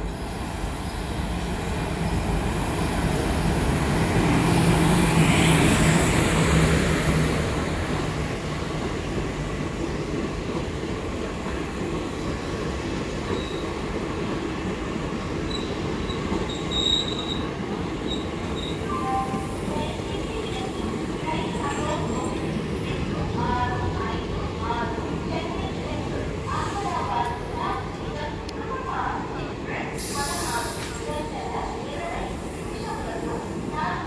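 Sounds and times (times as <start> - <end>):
high squeals from running gear: 16.5 - 17.4.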